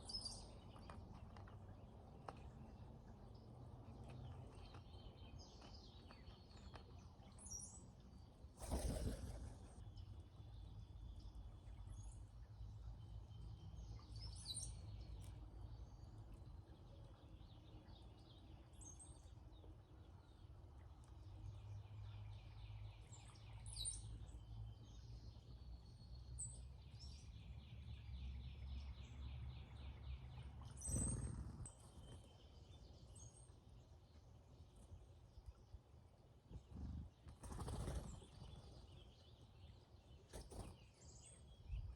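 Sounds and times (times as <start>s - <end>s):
birds squeaking and whistling: 30.6s - 32.3s.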